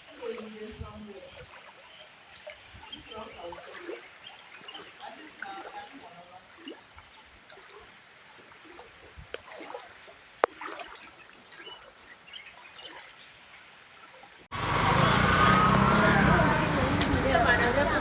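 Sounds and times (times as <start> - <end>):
floodwater trickling: 0.0 - 14.5.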